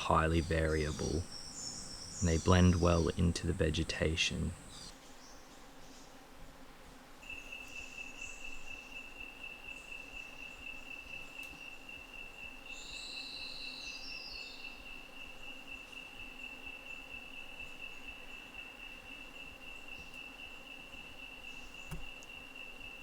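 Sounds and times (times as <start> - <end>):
animal chirping: 0.0 - 4.9
insect high-pitched trill: 0.0 - 4.9, 7.2 - 23.0.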